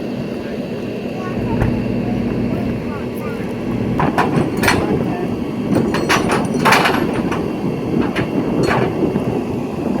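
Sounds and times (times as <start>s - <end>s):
truck engine running: 0.0s - 10.0s
metallic knocks and clanks: 3.7s - 9.2s.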